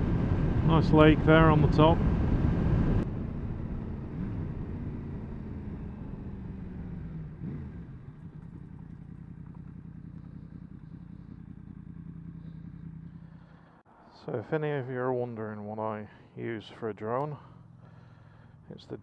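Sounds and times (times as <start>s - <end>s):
motorcycle engine idling: 3.0s - 13.9s, 17.1s - 18.8s.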